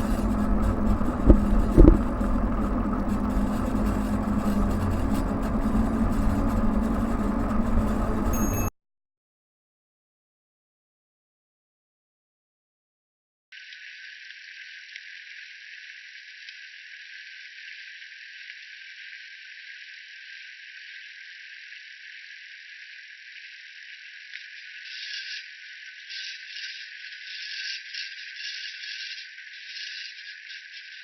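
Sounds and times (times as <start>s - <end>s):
e-bike grinding and rattling: 0.0s - 8.7s.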